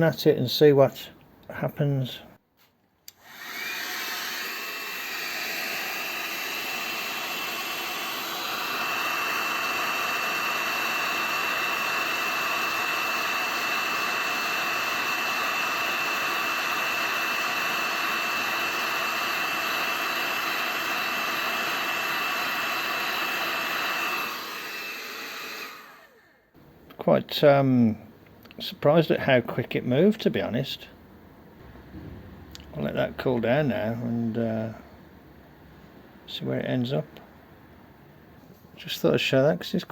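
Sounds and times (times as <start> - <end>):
heat gun blowing and whining: 3.1 - 26.6.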